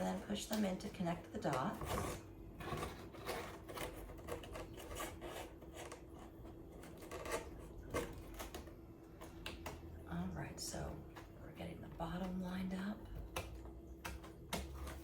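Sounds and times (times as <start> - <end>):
cardboard scraping and rubbing: 1.4 - 8.6
cardboard pieces clicking and tapping: 12.2 - 15.0.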